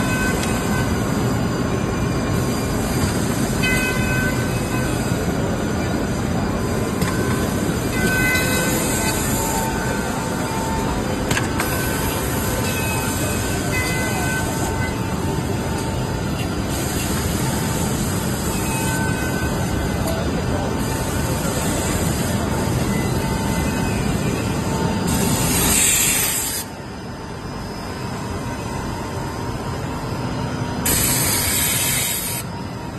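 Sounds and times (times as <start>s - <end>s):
machine running loudly: 0.0s - 32.9s.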